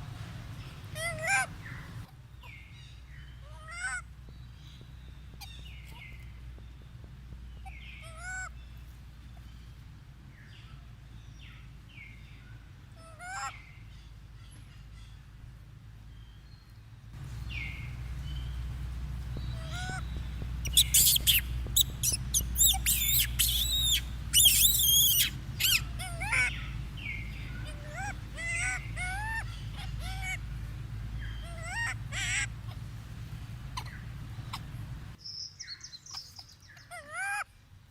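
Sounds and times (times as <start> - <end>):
steady low hum: 0.0 - 35.2
monkey squealing and chirping: 1.0 - 1.8, 19.4 - 30.4, 31.2 - 32.8, 33.8 - 34.8, 36.1 - 37.4.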